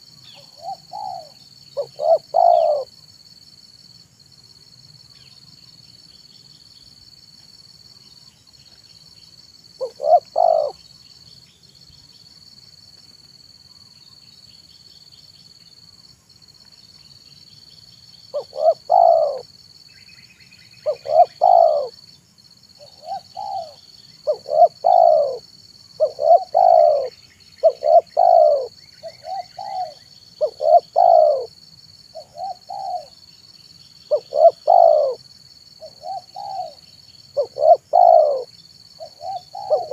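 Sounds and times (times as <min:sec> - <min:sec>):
faint small-bird chirps: 0:00.0 - 0:02.9, 0:05.0 - 0:07.0, 0:13.6 - 0:16.0, 0:16.6 - 0:31.5
dove cooing: 0:00.4 - 0:02.9, 0:09.8 - 0:10.8, 0:18.3 - 0:19.5, 0:20.8 - 0:21.9, 0:22.8 - 0:25.4, 0:26.0 - 0:31.5, 0:32.1 - 0:33.2, 0:34.1 - 0:35.2, 0:35.8 - 0:36.8, 0:37.4 - 0:39.9
high-pitched insect drone: 0:13.5 - 0:39.9.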